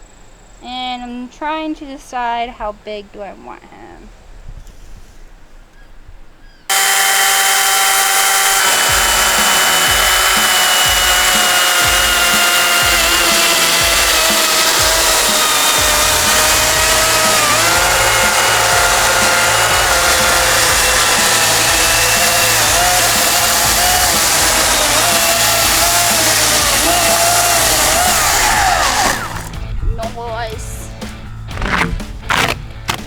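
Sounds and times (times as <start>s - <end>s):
chainsaw cutting into log: 6.7s - 29.6s, 31.5s - 33.0s
background music: 7.2s - 33.0s.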